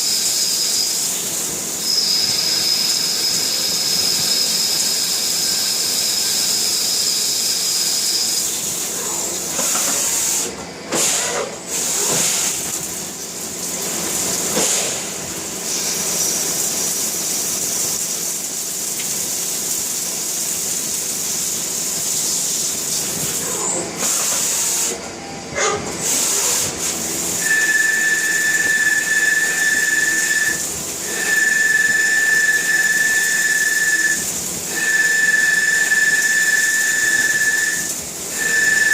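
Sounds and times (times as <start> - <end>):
machine cutting hiss and whine: 0.0 - 12.7, 22.0 - 38.9.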